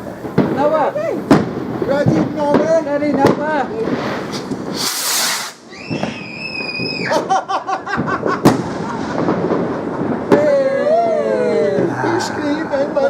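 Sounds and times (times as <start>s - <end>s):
firework whoosh: 0.0s - 7.1s, 8.0s - 10.8s
firework bang: 0.0s - 13.0s
fireworks crackling: 0.0s - 13.0s
firework shriek: 3.9s - 7.2s.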